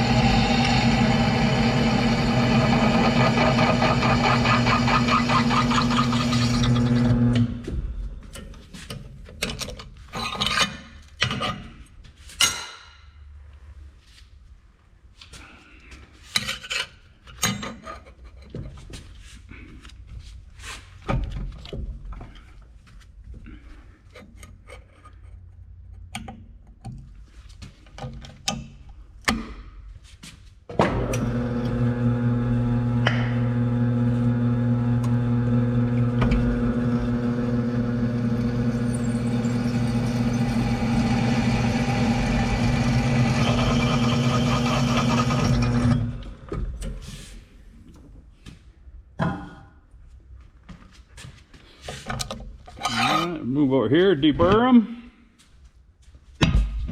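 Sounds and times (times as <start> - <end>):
power saw cutting metal: 0.0 - 7.5, 31.0 - 46.2, 52.8 - 53.4
metal stock clinking and scraping: 8.4 - 12.6, 52.0 - 53.5.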